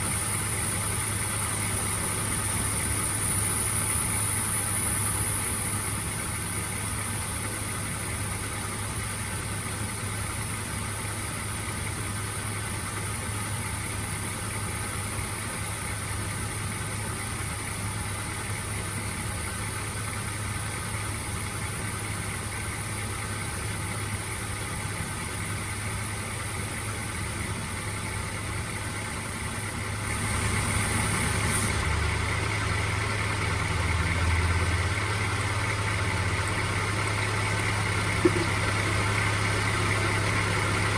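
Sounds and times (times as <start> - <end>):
continuous high hiss: 0.0 - 31.8
engine idling: 0.0 - 40.9
higher tone: 38.2 - 38.6.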